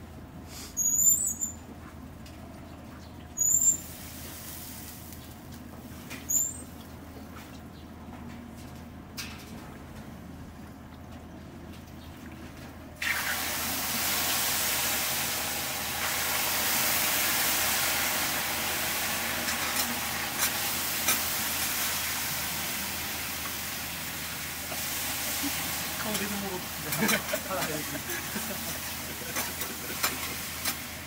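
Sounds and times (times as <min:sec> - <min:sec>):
meat sizzling: 0:13.0 - 0:31.0.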